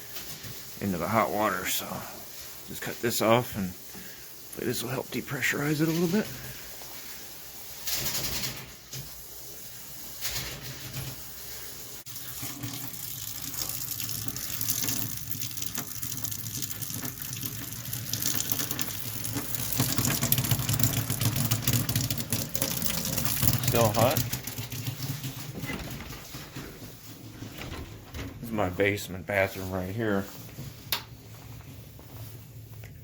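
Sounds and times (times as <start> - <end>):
water running from faucet: 12.0 - 25.4.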